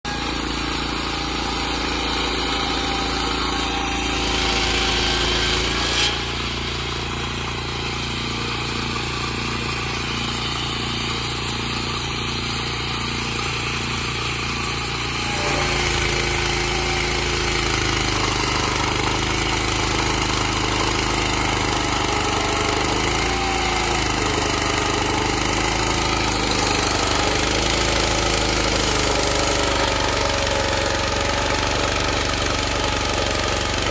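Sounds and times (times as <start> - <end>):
sawmill petrol engine running: 0.0 - 33.9.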